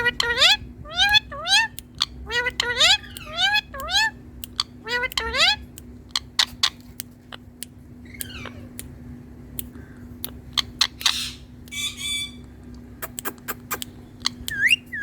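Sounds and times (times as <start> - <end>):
parrot squawk: 0.0 - 5.6, 8.2 - 8.8, 10.6 - 12.4
parrot chatter: 0.0 - 8.9, 10.2 - 15.0
parrot clicking: 0.0 - 11.8, 12.7 - 15.0.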